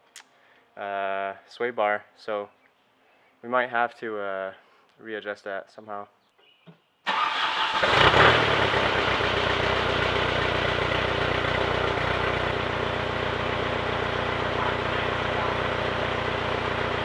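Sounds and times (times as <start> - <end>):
diesel engine starting and idling: 7.1 - 17.0.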